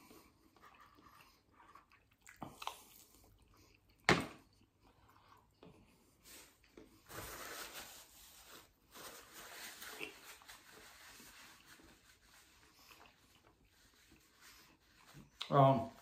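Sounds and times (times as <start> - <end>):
faint chewing: 0.0 - 7.0, 11.6 - 15.4.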